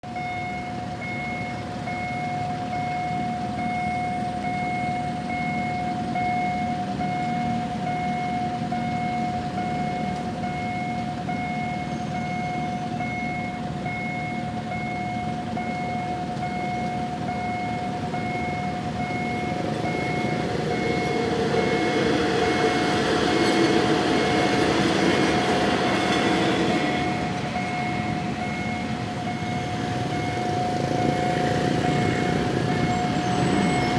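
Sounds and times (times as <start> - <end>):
level crossing alarm beeping: 0.0 - 33.9
train passing: 17.0 - 33.9.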